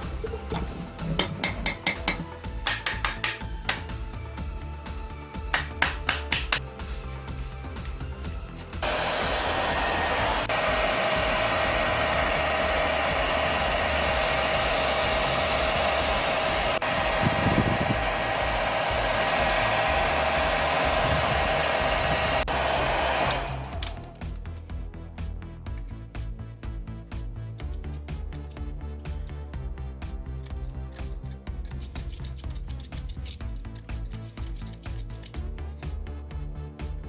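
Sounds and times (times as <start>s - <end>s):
rush of blown air with hum: 8.8s - 23.8s.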